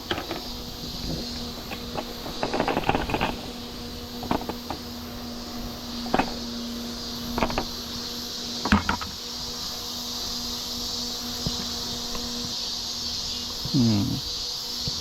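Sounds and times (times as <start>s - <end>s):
rustles and knocks: 0.0s - 3.5s
battery fans humming: 0.0s - 15.0s.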